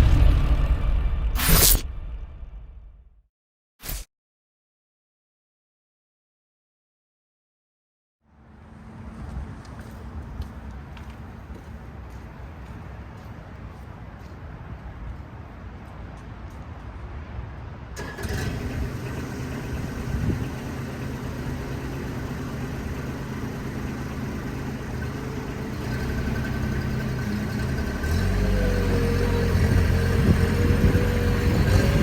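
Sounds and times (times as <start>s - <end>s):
loader engine running: 18.0s - 32.0s.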